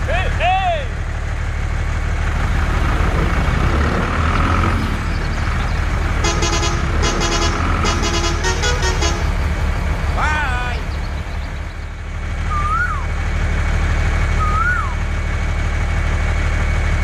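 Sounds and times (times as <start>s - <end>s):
truck engine rumbling: 0.0s - 17.0s
short horn toots: 6.2s - 9.4s.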